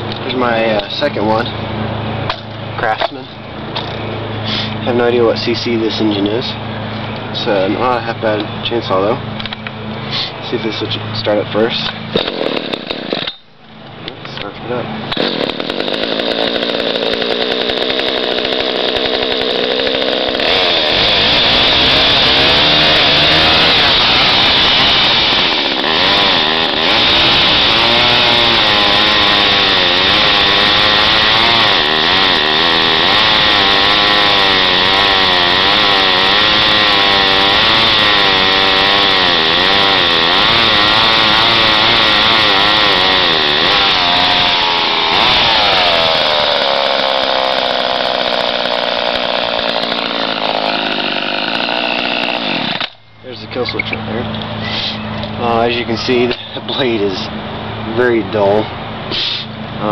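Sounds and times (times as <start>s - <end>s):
chainsaw cutting wood: 12.1s - 13.4s, 15.1s - 53.0s.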